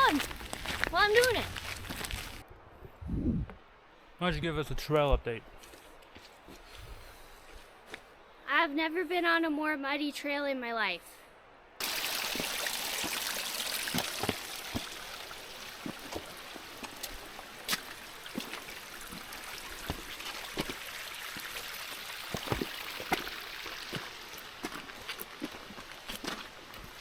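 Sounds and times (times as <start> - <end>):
creek water flowing: 0.0 - 2.4, 11.8 - 27.0
footsteps on muddy trail: 0.0 - 2.4, 5.6 - 8.1, 11.8 - 27.0.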